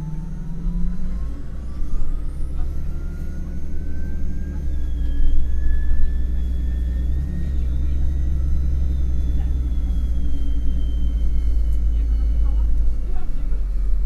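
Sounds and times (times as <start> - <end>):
bus engine low rumble: 0.0 - 14.0
drivetrain whine: 0.0 - 14.0
higher whine: 0.0 - 14.0.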